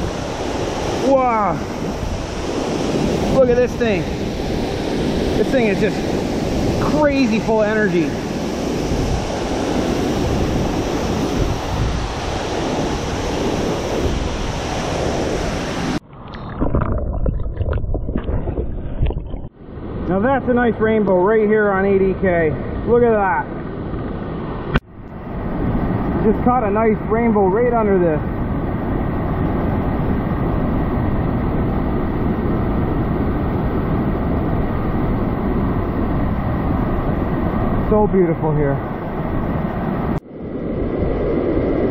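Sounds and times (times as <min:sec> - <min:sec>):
waterfall roaring: 0:00.0 - 0:16.0
sharp knocks and splashes: 0:16.1 - 0:19.5.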